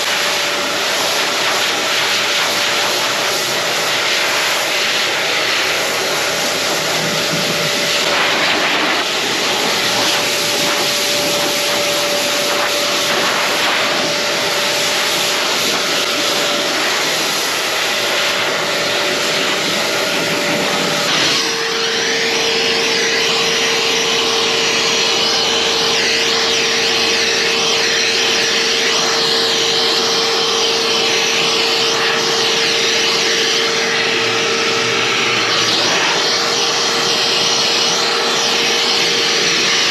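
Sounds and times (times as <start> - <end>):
pet hair dryer blowing air: 0.0 - 39.9.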